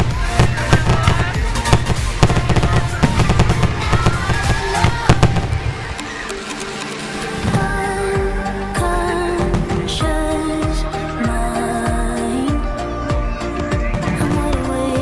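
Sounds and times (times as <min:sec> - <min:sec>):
fireworks bangs and crackling: 0:00.0 - 0:06.1
music playing: 0:00.0 - 0:15.0.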